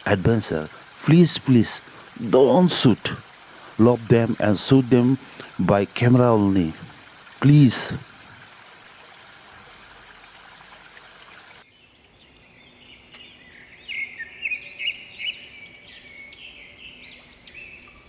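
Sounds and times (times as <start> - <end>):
steady hiss: 0.0 - 11.6
high chirping bird calls: 11.4 - 18.0.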